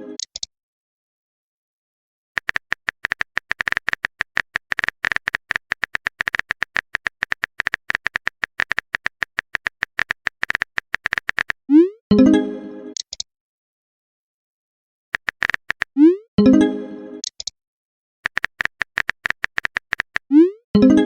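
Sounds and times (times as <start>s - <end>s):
phone keyboard typing clicks: 2.4s - 11.6s, 15.2s - 16.0s, 18.2s - 20.4s.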